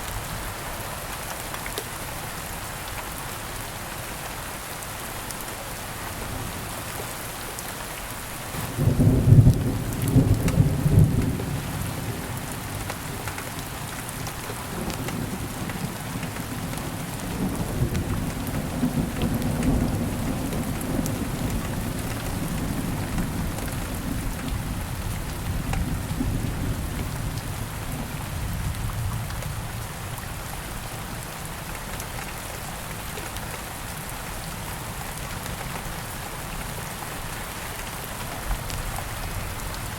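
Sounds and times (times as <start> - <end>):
steady rain: 0.0 - 39.9
thunder clap and rumble: 8.6 - 13.3, 14.7 - 29.7.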